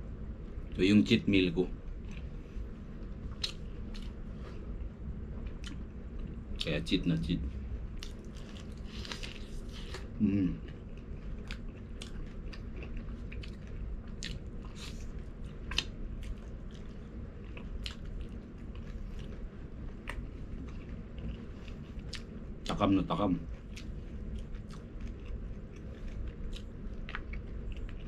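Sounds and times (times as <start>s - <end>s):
person short vocal sound: 10.2s - 10.6s.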